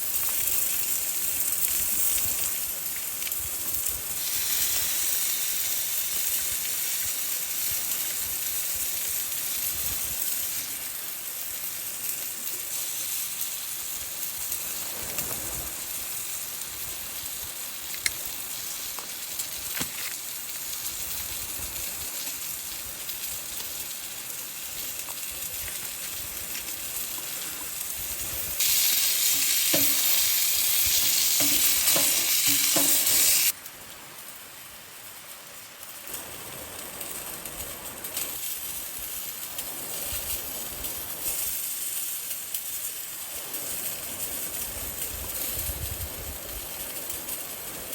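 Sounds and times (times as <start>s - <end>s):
food sizzling in a pan: 0.0s - 47.9s.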